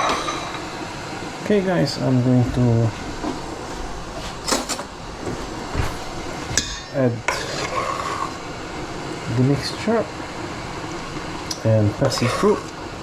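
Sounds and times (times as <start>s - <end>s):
utensils clinking against pot: 0.0s - 0.7s, 4.5s - 4.9s, 6.5s - 7.8s
steady background hiss: 0.0s - 13.0s.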